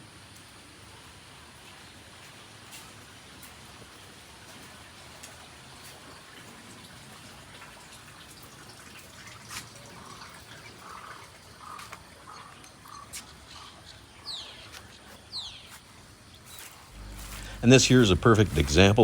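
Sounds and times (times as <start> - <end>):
trickling water hiss: 0.0 - 19.0
water dripping: 1.6 - 13.7.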